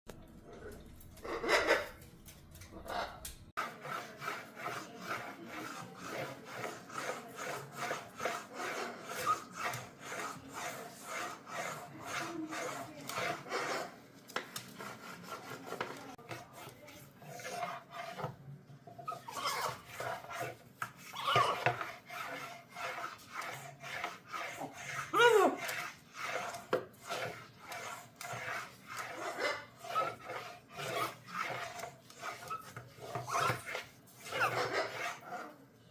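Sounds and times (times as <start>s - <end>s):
beak scraping against sink: 0.5s - 35.6s.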